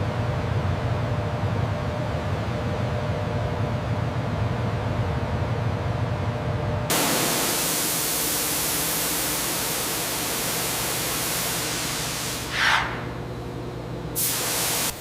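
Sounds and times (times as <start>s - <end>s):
hiss of rushing air: 6.9s - 13.1s, 14.2s - 15.0s.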